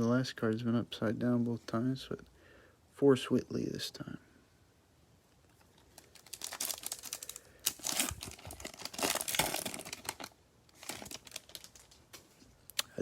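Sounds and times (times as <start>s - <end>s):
plastic wrapper crinkling: 5.4s - 12.4s.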